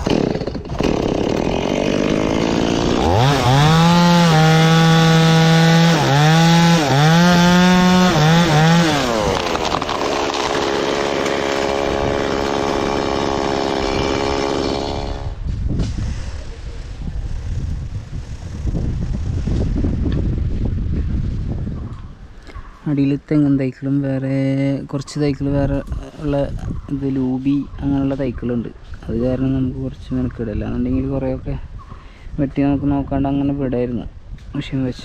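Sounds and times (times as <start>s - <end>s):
chainsaw cutting wood: 0.0s - 16.4s.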